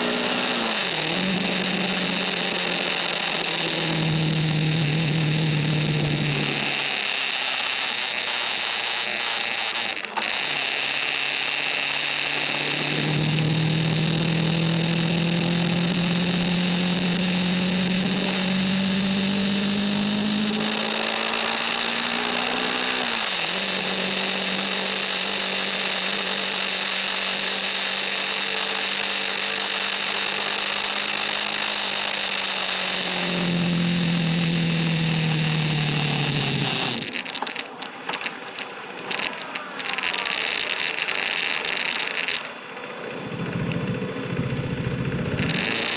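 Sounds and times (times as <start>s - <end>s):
motorcycle engine at speed: 0.0s - 45.9s
wind and road noise: 26.7s - 45.9s.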